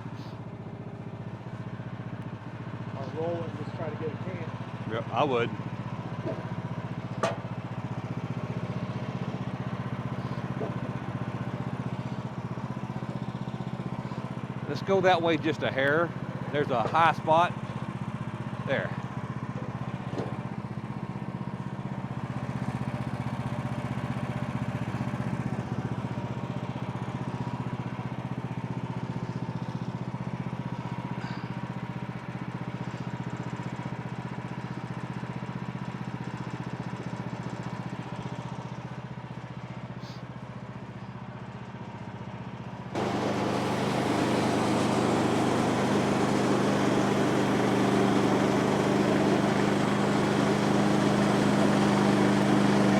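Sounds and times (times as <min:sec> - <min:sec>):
sawmill gas engine running: 0:00.0 - 0:52.9.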